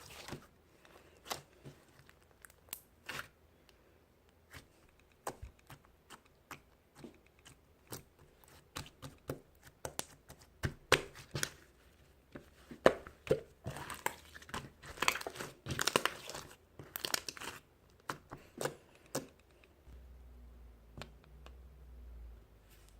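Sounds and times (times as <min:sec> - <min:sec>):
crinkling and tearing rustles: 0:13.6 - 0:18.8.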